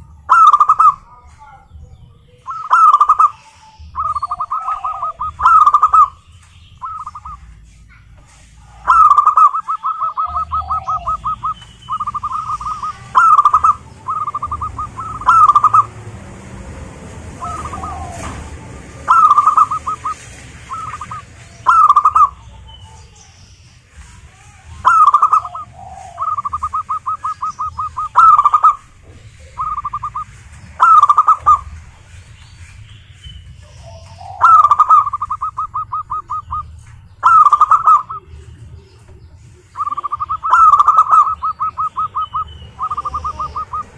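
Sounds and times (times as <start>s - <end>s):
doves cooing: 0.0s - 7.6s, 8.5s - 23.2s, 23.9s - 43.9s.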